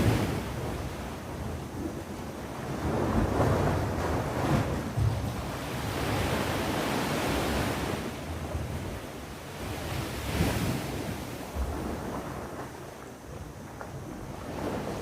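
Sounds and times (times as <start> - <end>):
sea waves washing onto shore: 0.0 - 15.0
wind buffeting microphone: 0.0 - 15.0.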